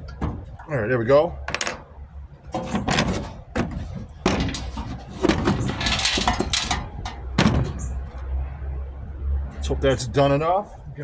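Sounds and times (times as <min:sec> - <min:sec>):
sheet metal parts clanking: 0:01.5 - 0:01.9, 0:02.5 - 0:08.0.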